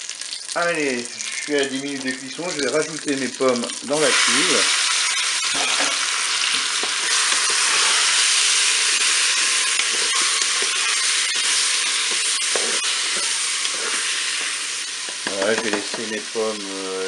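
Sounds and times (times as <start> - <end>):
food sizzling in butter: 0.0 - 17.0
spatula scraping a pot: 5.5 - 16.2.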